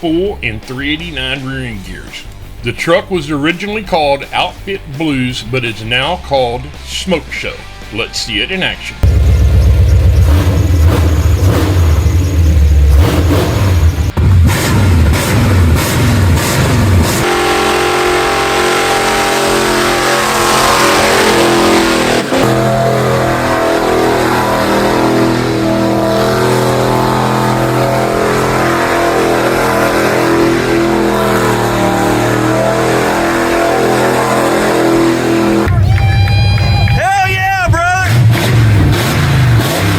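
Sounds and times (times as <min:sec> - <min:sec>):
engine revving hard: 0:09.0 - 0:35.8, 0:38.0 - 0:39.9.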